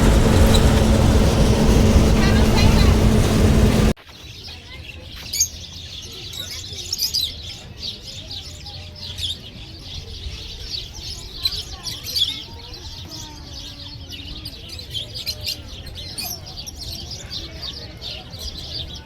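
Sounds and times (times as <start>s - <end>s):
faint voices: 0.0s - 4.0s
small birds chirping: 0.0s - 19.0s.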